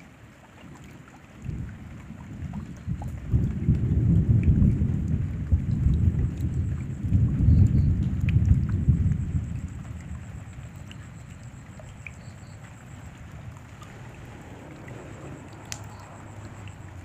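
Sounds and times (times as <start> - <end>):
rain falling: 0.0 - 17.0
water dripping: 0.0 - 17.0
thunder rumble: 1.4 - 10.7, 12.7 - 17.0.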